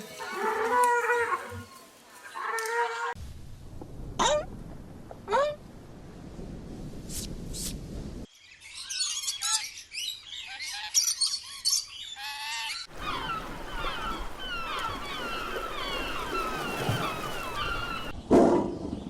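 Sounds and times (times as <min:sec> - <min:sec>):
birds chirping: 0:08.3 - 0:19.0.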